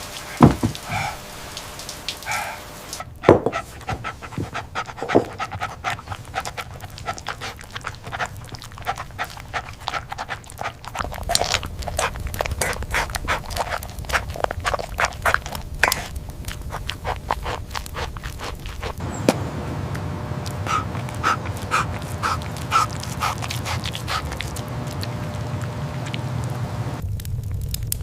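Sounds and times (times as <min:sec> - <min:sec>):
dog panting: 0:00.2 - 0:01.3, 0:02.1 - 0:19.2, 0:20.2 - 0:27.0
thumps: 0:00.4 - 0:00.9, 0:03.2 - 0:05.5.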